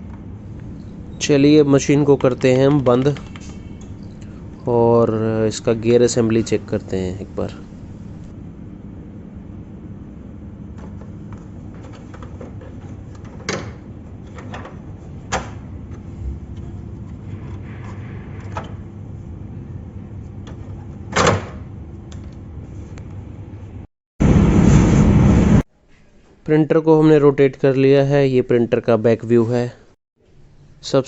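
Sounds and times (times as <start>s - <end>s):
steady low hum: 0.0s - 26.2s
loud even burst of noise: 24.2s - 25.6s.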